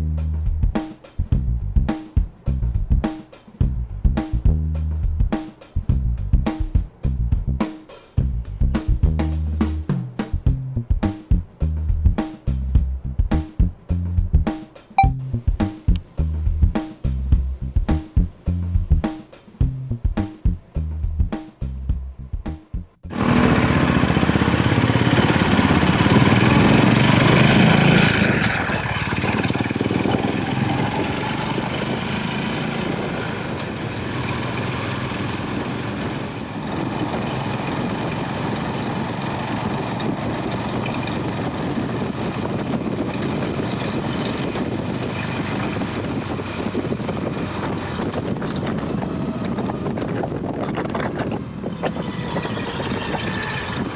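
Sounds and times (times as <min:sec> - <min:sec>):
steady rushing noise: 0:23.0 - 0:53.9
motorcycle engine running: 0:23.1 - 0:50.6.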